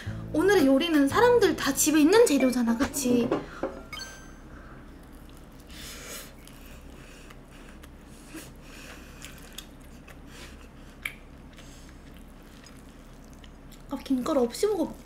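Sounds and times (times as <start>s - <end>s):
low steady hum: 0.0s - 15.0s
person chewing: 4.8s - 14.2s.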